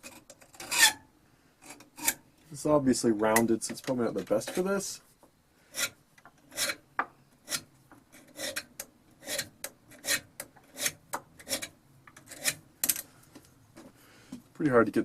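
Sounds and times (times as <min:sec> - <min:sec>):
hand file scraping metal: 0:00.0 - 0:01.0, 0:01.6 - 0:02.2, 0:05.7 - 0:06.8, 0:07.4 - 0:12.6.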